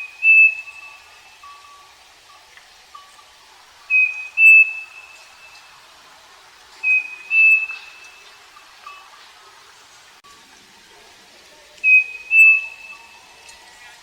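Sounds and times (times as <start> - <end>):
cuckoo two-note whistled song: 0.0 - 1.7, 3.9 - 5.6, 6.8 - 8.3, 11.8 - 13.6
faint low whistles: 11.8 - 14.0.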